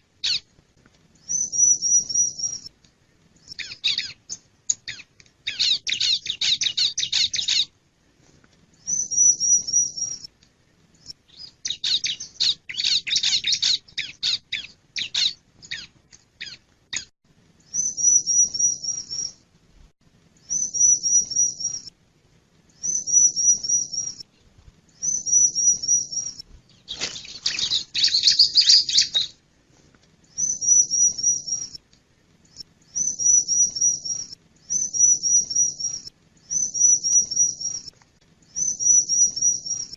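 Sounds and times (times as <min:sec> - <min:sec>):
bird calling high repeated notes: 0:20.4 - 0:21.9, 0:22.8 - 0:24.3, 0:25.0 - 0:29.4, 0:30.3 - 0:31.8, 0:32.9 - 0:37.9, 0:38.5 - 0:39.9.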